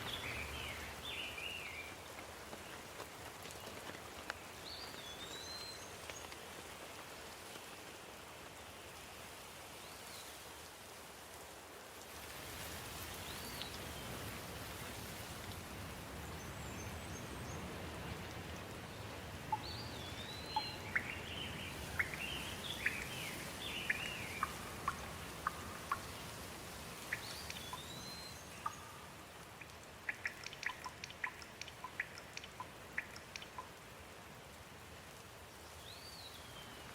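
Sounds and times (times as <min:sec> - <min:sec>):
steady rain: 0:00.0 - 0:36.9
quick water drips: 0:18.1 - 0:33.8.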